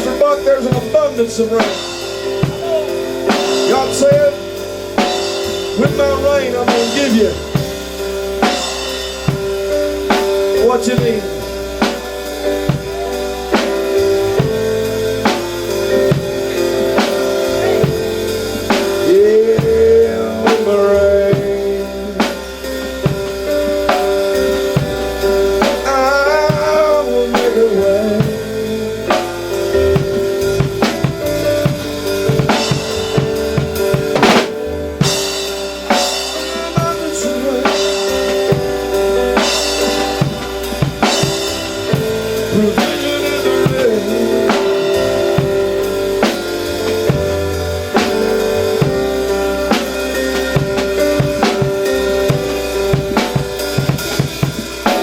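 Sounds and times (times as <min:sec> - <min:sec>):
drum kit beat: 0:00.0 - 0:55.0
held chords and bass: 0:00.0 - 0:55.0.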